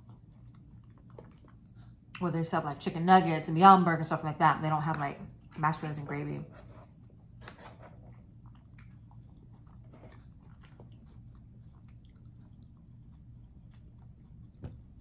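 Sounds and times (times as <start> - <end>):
person chewing: 0.0 - 2.2, 6.9 - 15.0.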